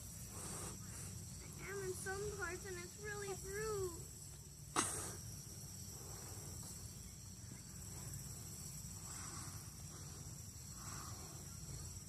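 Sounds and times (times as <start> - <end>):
crickets singing: 0.0 - 12.0.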